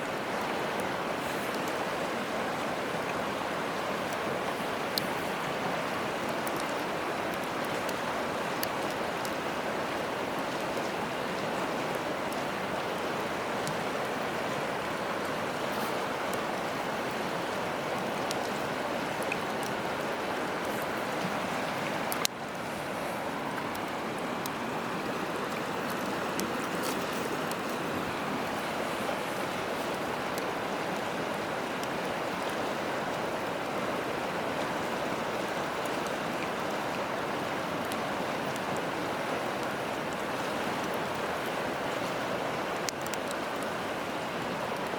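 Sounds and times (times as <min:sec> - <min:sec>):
river rushing: 0:00.0 - 0:44.9
campfire crackling and popping: 0:04.0 - 0:21.3, 0:23.4 - 0:28.9.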